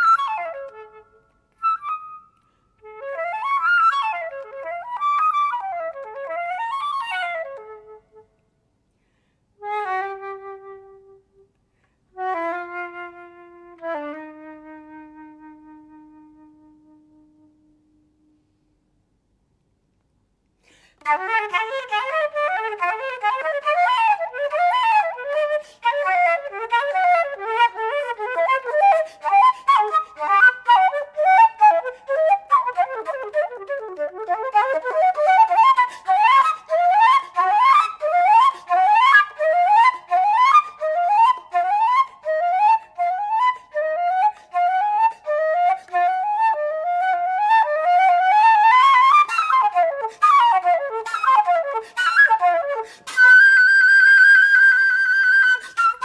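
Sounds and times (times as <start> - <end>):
flute playing fast runs: 21.0 - 56.0.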